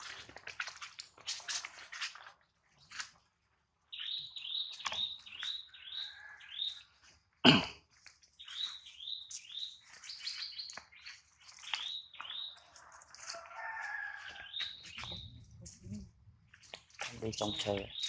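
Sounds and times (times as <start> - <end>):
birds chirping: 3.9 - 7.6, 8.2 - 18.0.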